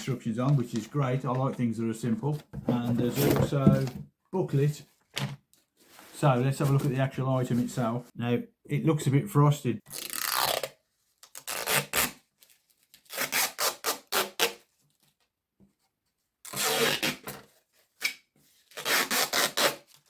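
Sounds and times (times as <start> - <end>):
plastic rubbing and scraping: 0.0 - 4.0.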